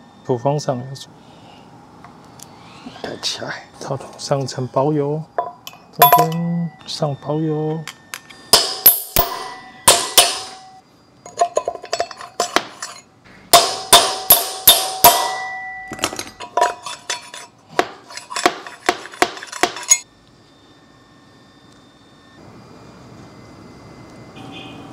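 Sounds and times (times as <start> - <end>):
hammer striking metal socket: 5.4 - 6.5, 7.8 - 20.0.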